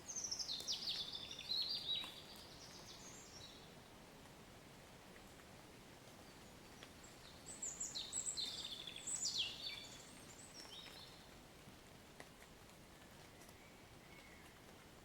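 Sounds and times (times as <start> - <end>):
songbird chirping: 0.0 - 3.8, 6.1 - 11.4, 13.2 - 15.0.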